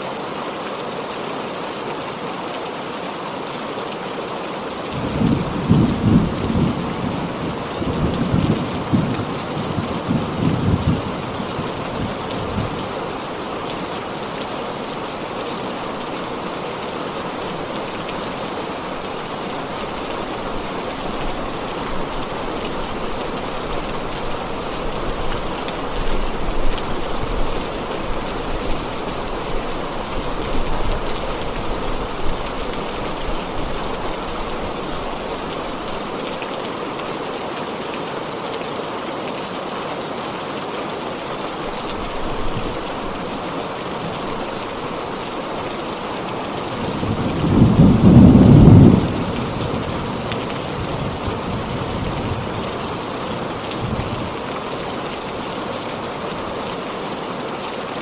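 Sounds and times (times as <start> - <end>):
heavy rain falling: 0.0 - 58.0
low rumble of thunder: 5.0 - 12.9, 46.8 - 52.8.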